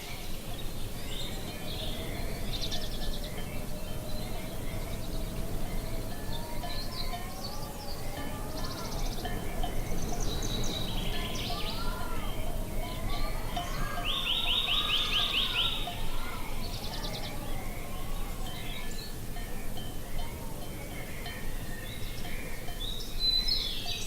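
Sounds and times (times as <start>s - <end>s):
birds singing and calling: 0.0s - 24.0s
fast bird trill: 8.6s - 18.9s.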